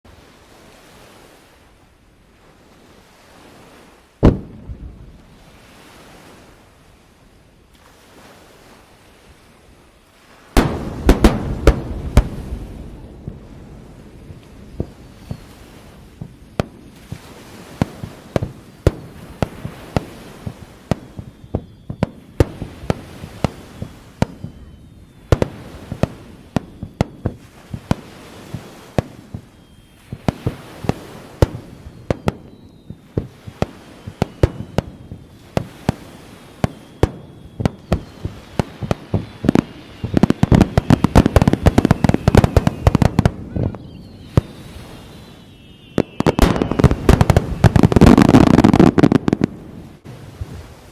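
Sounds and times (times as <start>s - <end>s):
faint firework whistles: 3.0s - 50.9s
firework shells bursting: 10.6s - 13.1s, 30.1s - 49.6s.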